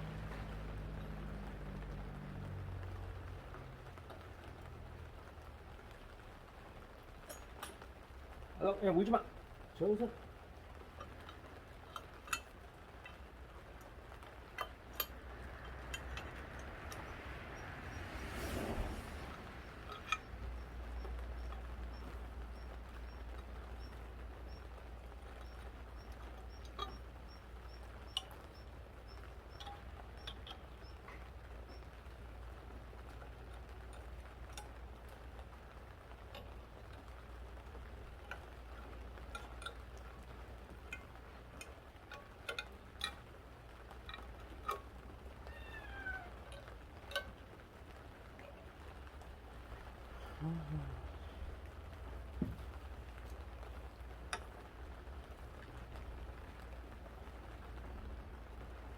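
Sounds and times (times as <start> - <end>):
faint low hum: 0.0 - 58.9
light clicks and taps: 18.6 - 32.3, 32.9 - 50.2, 51.4 - 58.8
cat meowing: 45.4 - 46.5.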